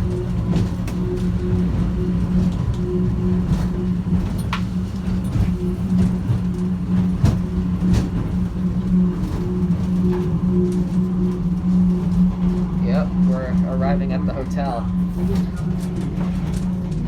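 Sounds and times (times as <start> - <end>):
train car knocks and rattles: 0.0 - 10.8
train low electric hum: 0.0 - 17.0.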